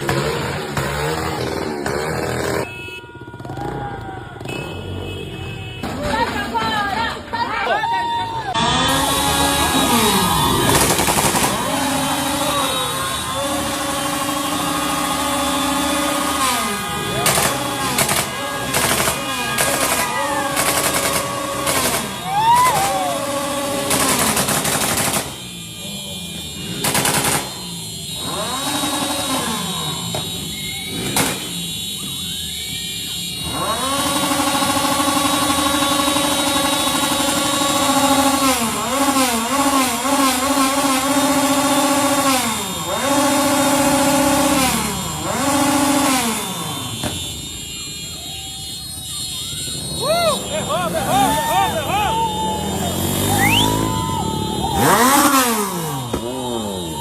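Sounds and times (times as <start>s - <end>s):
held horn-like tones: 0.0s - 57.0s
loud sustained horn blast: 8.6s - 19.9s
bursts of rapid cracking: 8.6s - 25.6s, 26.6s - 27.7s.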